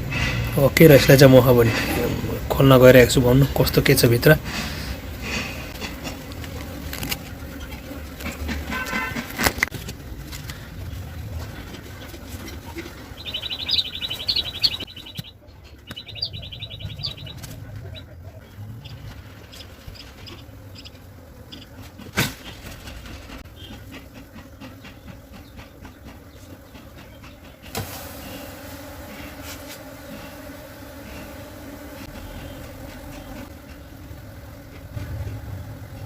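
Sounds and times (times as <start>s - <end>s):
beehive handling noises: 0.7s - 17.9s, 19.1s - 36.0s
bird trilling: 12.6s - 21.7s.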